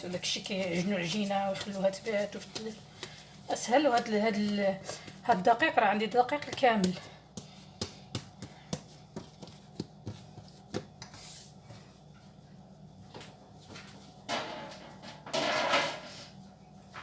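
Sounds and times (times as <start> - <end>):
cookware scraping: 14.3 - 16.3.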